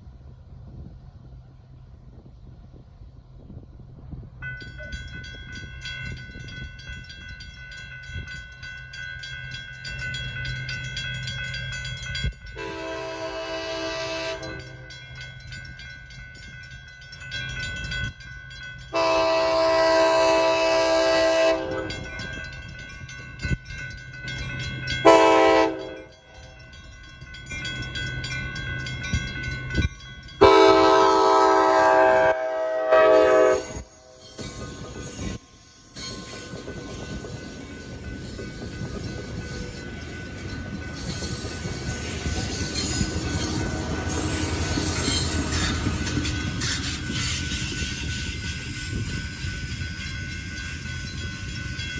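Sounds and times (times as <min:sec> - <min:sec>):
low rumble of train: 0:00.0 - 0:51.9
crossing bells ringing: 0:04.4 - 0:51.9
train horn blasts: 0:12.6 - 0:14.9, 0:18.9 - 0:22.1, 0:25.0 - 0:26.2, 0:30.4 - 0:34.1.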